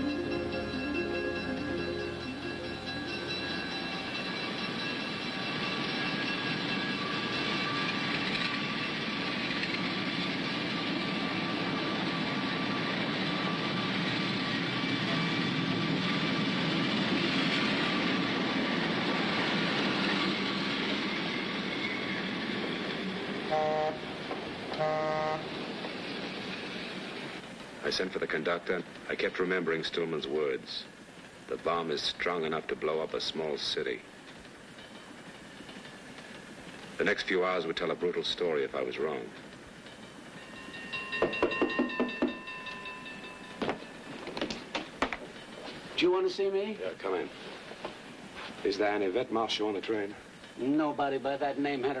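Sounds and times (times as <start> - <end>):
train wheels rumbling on rails: 0.0 - 52.0
train horn toots: 23.4 - 25.5.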